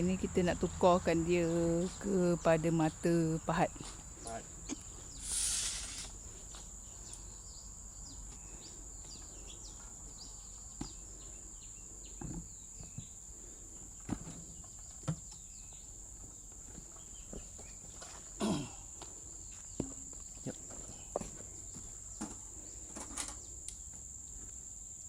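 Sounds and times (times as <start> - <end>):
insect drone: 0.0 - 16.5, 17.1 - 25.0
light knocks and clunks: 12.2 - 13.1.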